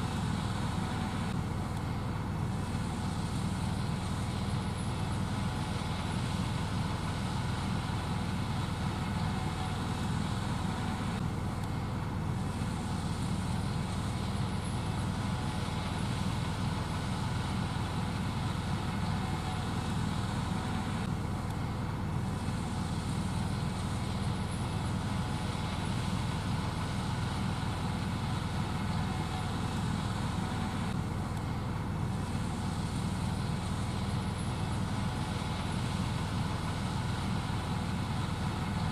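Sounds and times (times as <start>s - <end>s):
combine harvester drone: 0.0s - 38.9s.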